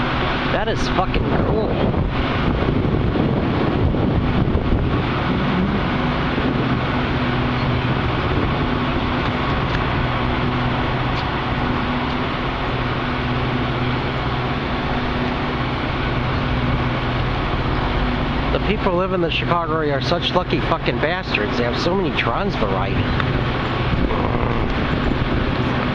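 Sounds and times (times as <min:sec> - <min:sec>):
even rush of noise: 0:00.0 - 0:20.0
diesel locomotive engine hum: 0:00.0 - 0:25.9.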